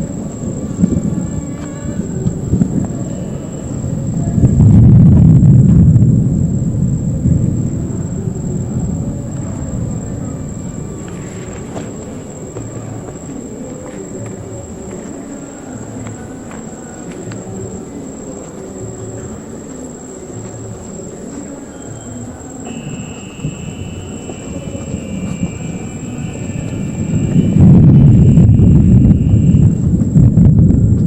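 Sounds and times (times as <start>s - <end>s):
distant thunder rumbling: 0.0s - 13.7s, 22.6s - 31.0s
insect chorus: 0.0s - 31.0s
low insect trill: 0.0s - 31.0s.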